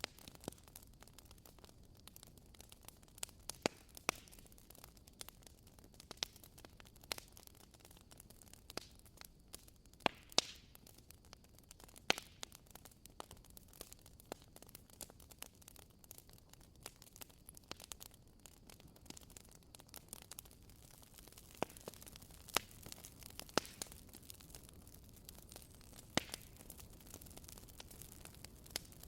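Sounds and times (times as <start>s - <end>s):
firewood crackling and popping: 0.0s - 29.0s
fire hiss: 2.4s - 29.0s.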